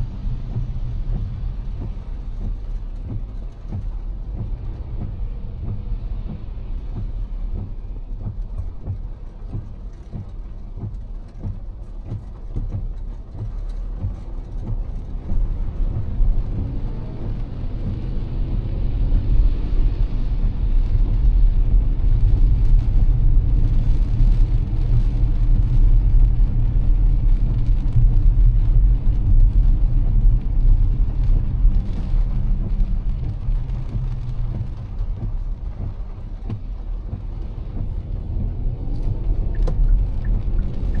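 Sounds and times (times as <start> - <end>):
faint rain hiss: 0.0 - 41.0
road and engine rumble: 0.0 - 41.0.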